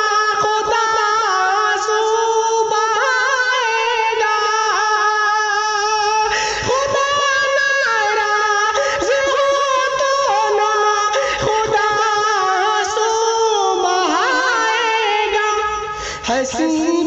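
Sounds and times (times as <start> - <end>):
layered voices singing wordlessly: 6.7 - 15.9.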